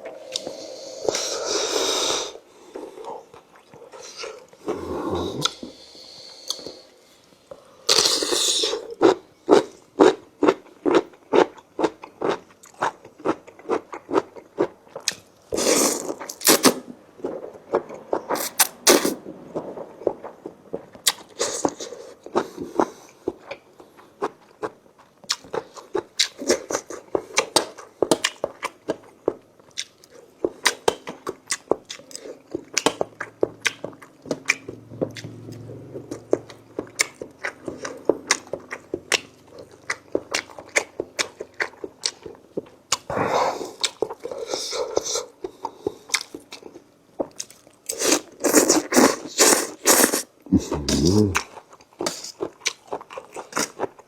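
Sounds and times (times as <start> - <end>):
wet chewing chomps: 24.3 - 43.1.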